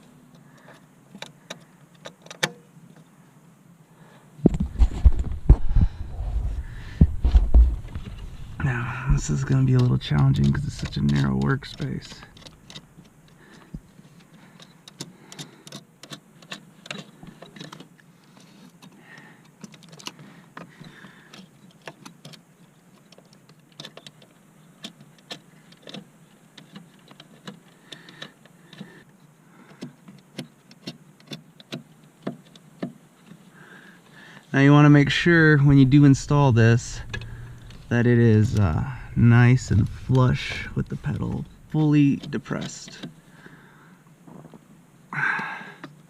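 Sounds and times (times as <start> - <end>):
small metal clicks and taps: 9.7 - 17.9.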